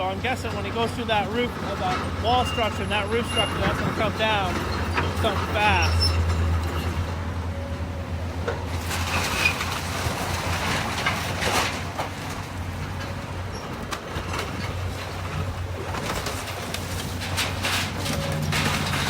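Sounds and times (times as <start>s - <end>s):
diesel engine running: 0.0s - 19.0s
debris cracking and clanking: 8.7s - 19.0s.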